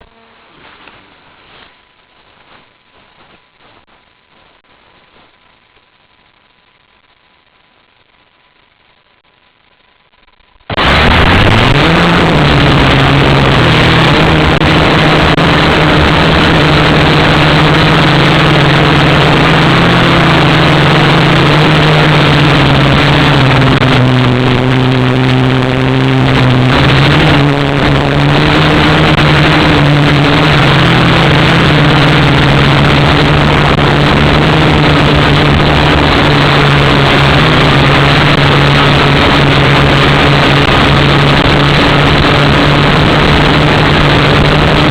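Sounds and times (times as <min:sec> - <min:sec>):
drone motors buzzing: 0:10.8 - 0:44.9.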